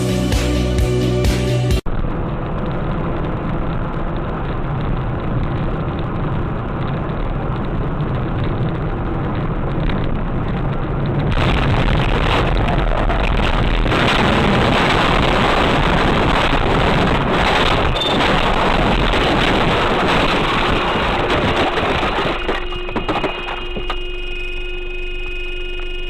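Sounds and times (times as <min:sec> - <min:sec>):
car driving on road: 0:01.9 - 0:11.4.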